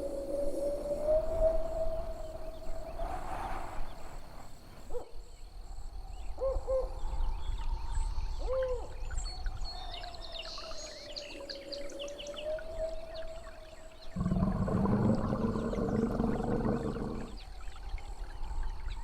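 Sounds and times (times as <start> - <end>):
hooting bird calls: 14.2 - 17.4.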